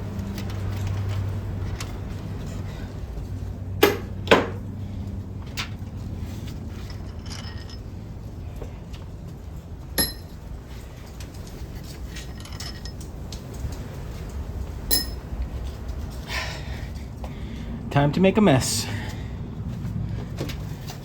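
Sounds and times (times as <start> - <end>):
metal tools and bolts clinking: 6.7 - 8.0, 10.0 - 10.5, 11.9 - 13.1, 14.9 - 15.3.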